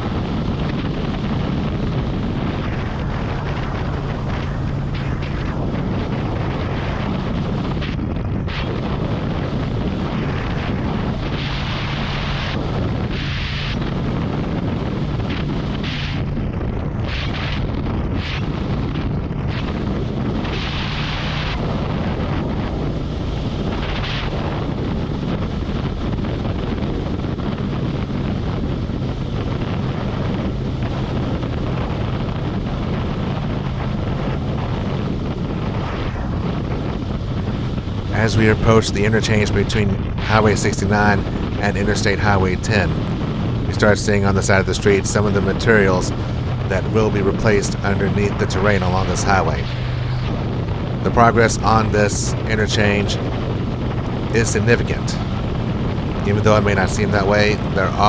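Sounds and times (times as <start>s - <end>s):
wind rush on microphone: 0.0s - 58.0s
motorcycle engine drone: 37.4s - 58.0s.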